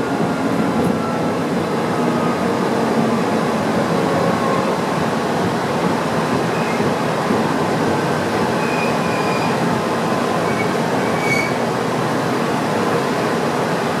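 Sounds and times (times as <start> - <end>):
train wheels rumbling on rail: 0.0 - 14.0
faint wheel squeals: 10.5 - 11.6.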